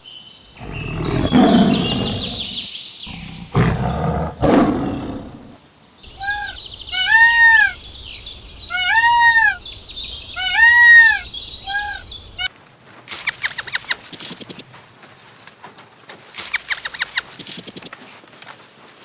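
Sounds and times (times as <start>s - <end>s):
big cat roar: 0.6s - 5.6s
high bird chirps and trills: 5.2s - 12.5s, 13.1s - 14.6s, 16.4s - 17.9s
clear arching bird call: 6.1s - 12.5s, 13.1s - 14.3s, 16.4s - 17.6s
rapid clicks: 13.1s - 14.6s, 16.4s - 17.9s.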